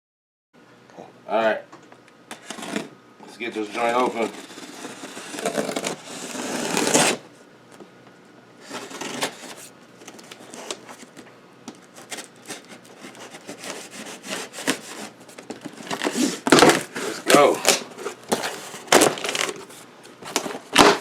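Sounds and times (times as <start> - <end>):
scraping along tape and flaps: 2.3 - 2.9, 3.6 - 7.2, 8.6 - 11.2, 11.9 - 21.0
cardboard box being opened: 3.7 - 7.2, 8.6 - 11.2, 11.9 - 21.0.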